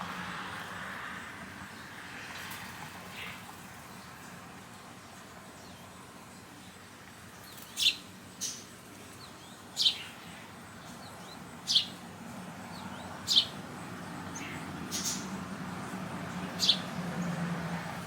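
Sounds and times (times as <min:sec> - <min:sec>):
sparrow chirping: 0:07.4 - 0:17.4.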